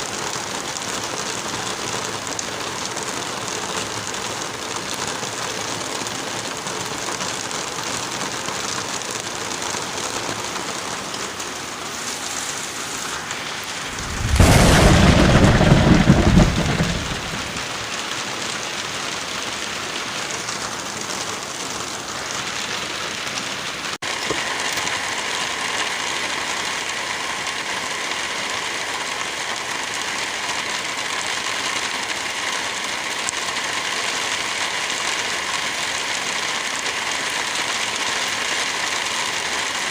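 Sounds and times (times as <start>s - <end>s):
steady rainfall: 0.0s - 39.9s
deep rumbling thunderclap: 13.8s - 18.0s.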